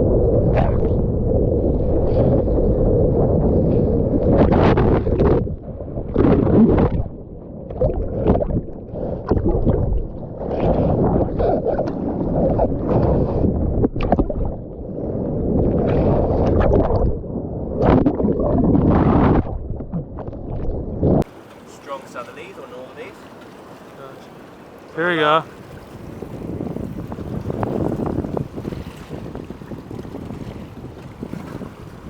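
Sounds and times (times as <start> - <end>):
wind buffeting microphone: 0.0 - 32.0
water sloshing around boat: 20.0 - 32.0.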